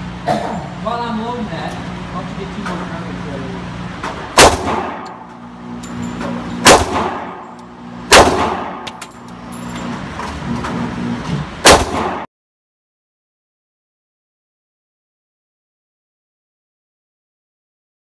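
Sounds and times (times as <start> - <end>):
low steady hum: 0.0 - 12.2
gunshots: 4.3 - 5.2, 6.6 - 7.5, 8.1 - 9.0, 11.6 - 12.3.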